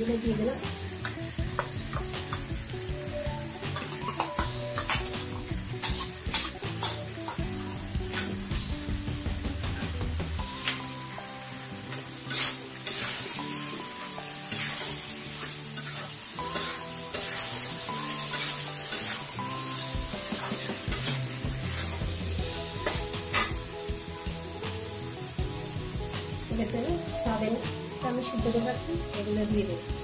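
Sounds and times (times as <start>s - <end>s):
background music with held notes: 0.0s - 30.0s
curry sizzling in a pan: 0.0s - 30.0s
spoon scraping and knocking pan: 3.6s - 8.4s, 11.9s - 13.8s, 14.5s - 23.7s.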